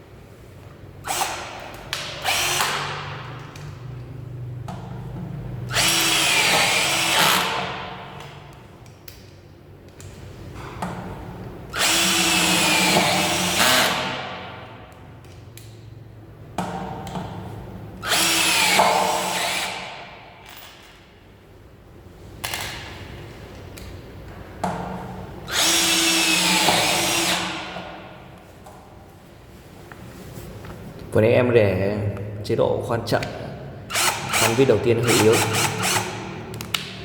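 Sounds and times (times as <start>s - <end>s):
cordless drill driving screws: 1.0s - 3.1s, 5.7s - 7.8s, 11.7s - 14.3s, 18.0s - 19.9s, 25.5s - 27.8s, 33.9s - 36.4s.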